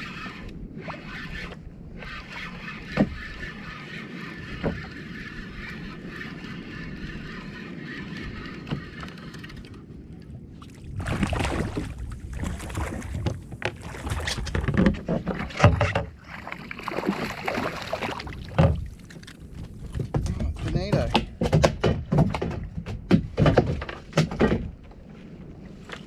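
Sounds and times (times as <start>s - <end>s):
water splashing: 10.6s - 20.1s
knocks against kayak hull: 18.5s - 18.9s, 20.0s - 24.8s.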